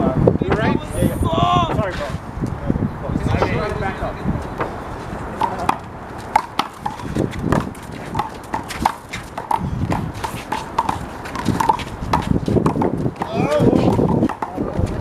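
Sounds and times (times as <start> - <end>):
shoe squeaks: 4.4 - 15.0
handball hitting wall and pavement: 5.4 - 15.0.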